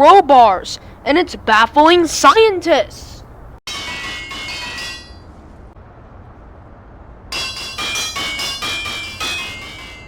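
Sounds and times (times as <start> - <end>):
crowbars clanging: 3.7 - 5.4, 7.3 - 10.0.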